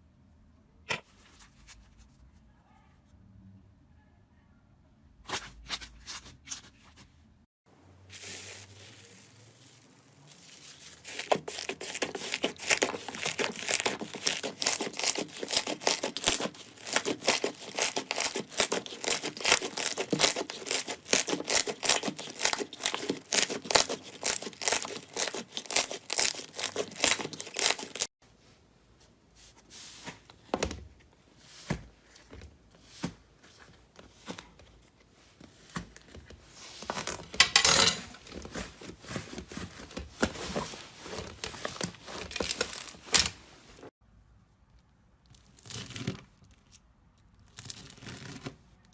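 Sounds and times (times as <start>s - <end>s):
slime crackling and popping: 11.0s - 28.1s.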